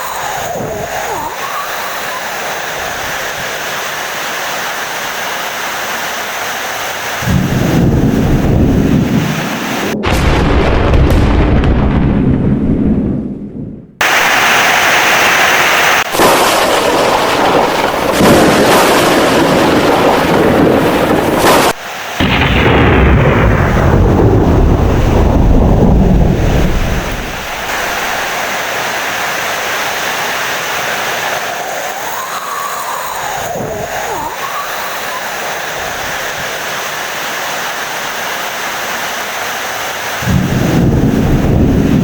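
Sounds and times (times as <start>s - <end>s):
heavy rain: 0.0s - 11.8s, 14.0s - 42.0s
thunder rumbling: 7.2s - 36.6s, 40.2s - 42.0s.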